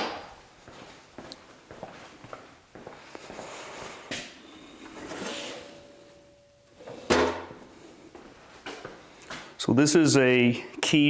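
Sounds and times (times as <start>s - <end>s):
metal scraping: 4.4s - 8.0s.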